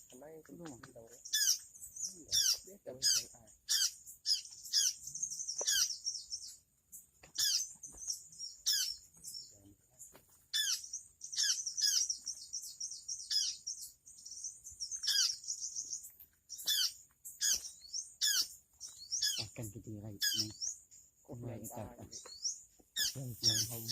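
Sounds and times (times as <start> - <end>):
small birds chirping: 0.0 - 23.9.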